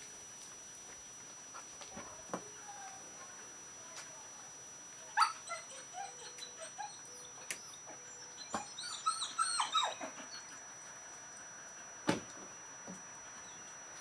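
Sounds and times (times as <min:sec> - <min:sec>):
dog whimpering: 0:05.2 - 0:10.7.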